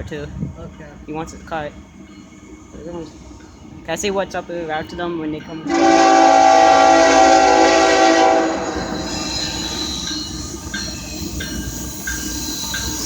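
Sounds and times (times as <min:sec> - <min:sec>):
train rolling past: 0:00.0 - 0:13.0
locomotive horn blast: 0:05.7 - 0:09.2.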